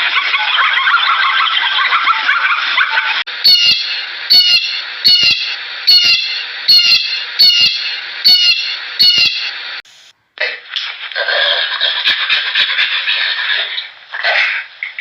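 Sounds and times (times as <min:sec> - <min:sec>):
noisy chorus of calls: 0:00.0 - 0:09.5.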